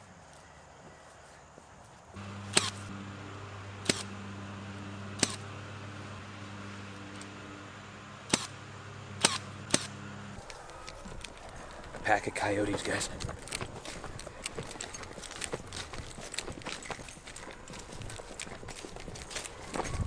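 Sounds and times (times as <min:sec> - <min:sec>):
low machine hum: 0:02.2 - 0:11.9
staple gun shots into wood: 0:08.3 - 0:08.5, 0:09.2 - 0:09.9.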